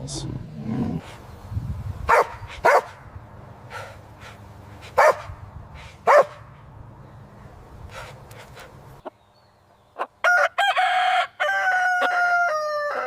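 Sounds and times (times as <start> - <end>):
dog barking: 2.1 - 3.0, 4.9 - 5.4, 6.0 - 6.5.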